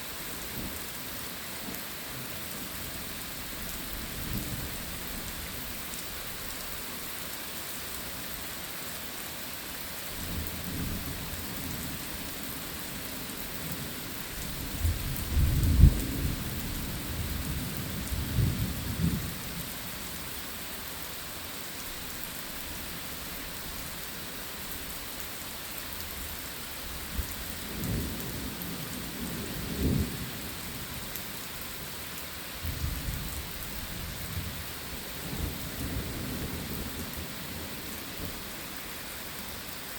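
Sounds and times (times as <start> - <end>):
heavy rain: 0.0 - 39.9
rolling thunder: 14.7 - 19.4.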